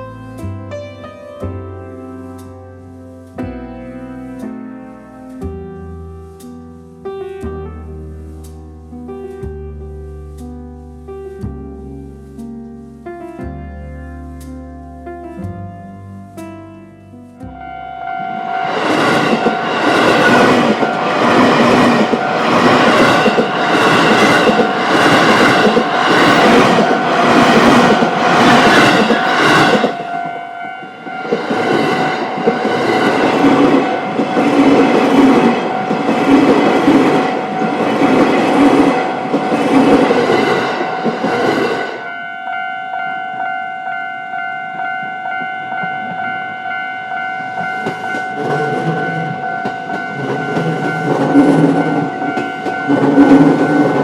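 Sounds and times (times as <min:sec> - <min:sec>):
level crossing alarm bell: 0:17.6 - 0:54.0
train wheels clattering on rails: 0:18.5 - 0:42.1, 0:47.5 - 0:54.0.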